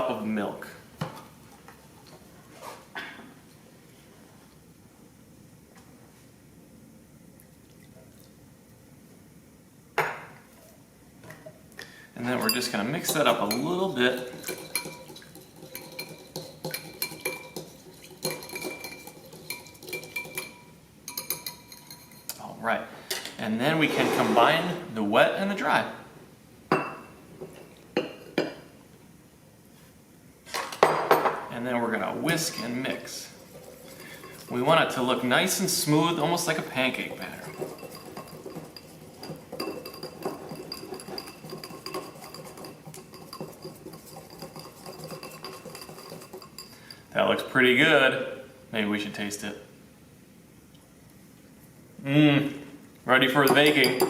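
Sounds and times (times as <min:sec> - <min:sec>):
utensil stirring wet mixture: 0:12.2 - 0:22.4, 0:31.7 - 0:47.2, 0:53.1 - 0:54.0
utensil clinking against dish: 0:12.3 - 0:22.4, 0:32.3 - 0:35.0, 0:36.5 - 0:47.1, 0:53.4 - 0:54.0.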